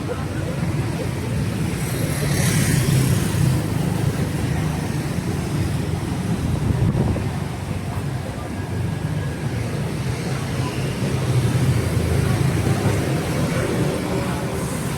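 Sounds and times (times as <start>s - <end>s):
vehicle engines rumbling: 0.0s - 14.9s
tyres hissing on wet road: 9.8s - 14.9s.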